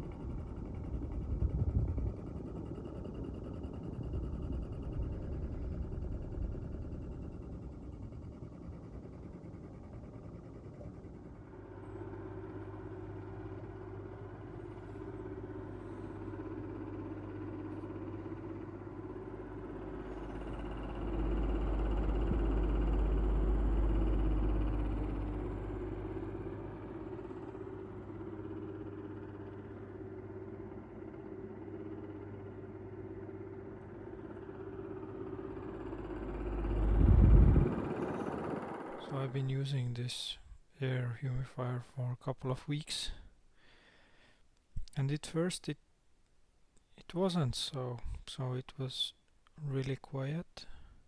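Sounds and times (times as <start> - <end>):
humidifier fan humming and wobbling: 0.0 - 40.7
deeper rumble: 34.4 - 39.6.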